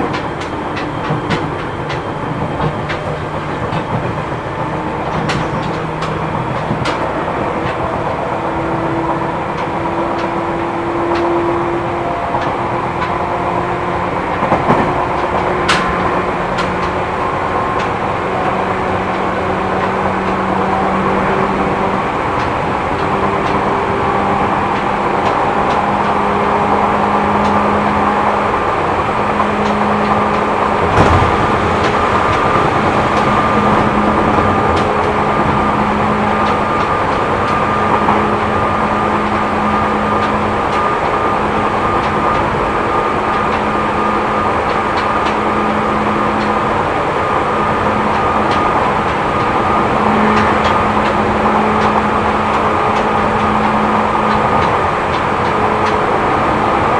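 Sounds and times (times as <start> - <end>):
train wheels rumbling on rail: 0.0 - 56.9
higher whine: 29.5 - 41.1
low hum: 30.6 - 36.8
sharp knock: 30.8 - 34.9.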